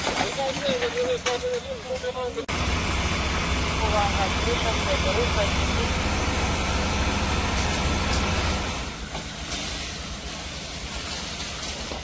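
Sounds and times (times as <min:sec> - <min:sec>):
loud rumbling noise with hiss: 0:02.5 - 0:12.0.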